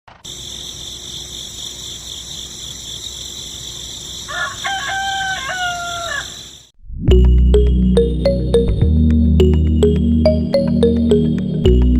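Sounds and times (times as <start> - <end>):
rooster crowing: 4.2 - 6.6.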